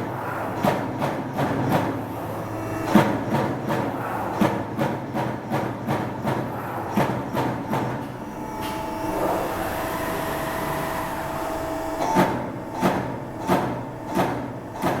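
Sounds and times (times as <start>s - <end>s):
machine steady whine: 8.1s - 14.0s.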